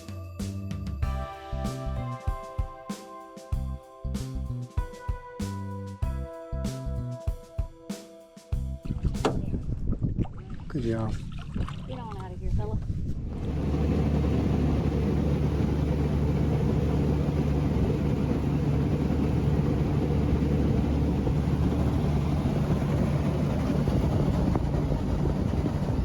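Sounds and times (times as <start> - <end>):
outboard motor running: 13.3 - 26.0.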